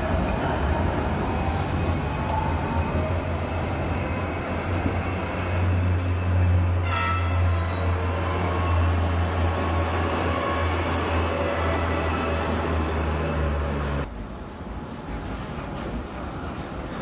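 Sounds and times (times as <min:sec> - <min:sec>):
tram rumbling on track: 0:00.0 - 0:17.0
sharp multi-tone horn: 0:06.8 - 0:07.8.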